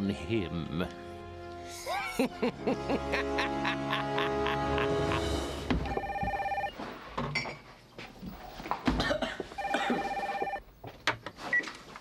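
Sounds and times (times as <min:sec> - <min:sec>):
telephone ringing: 0:05.8 - 0:06.8, 0:09.6 - 0:10.6.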